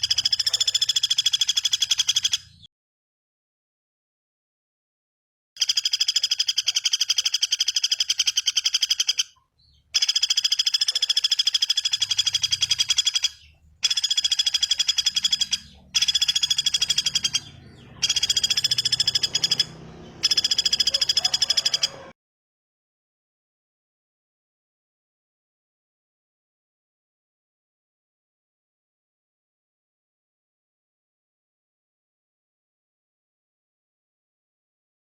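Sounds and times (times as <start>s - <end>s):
songbird high trill: 10.0s - 22.1s.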